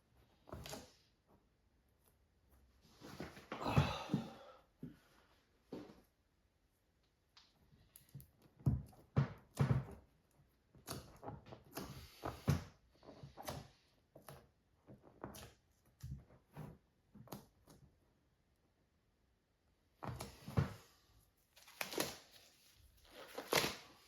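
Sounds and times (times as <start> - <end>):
hands handling materials: 20.0 - 24.0.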